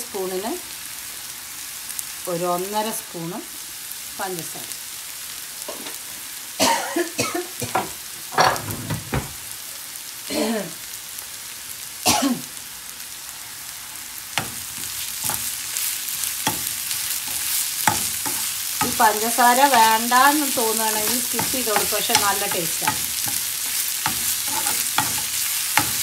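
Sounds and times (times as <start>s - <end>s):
onions sizzling in frying pan: 0.0s - 8.3s, 9.4s - 26.0s
spoon scraping pan: 14.4s - 26.0s.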